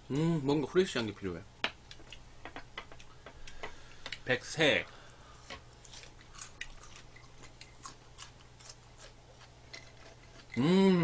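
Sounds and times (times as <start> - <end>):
faint chewing: 5.1 - 11.0.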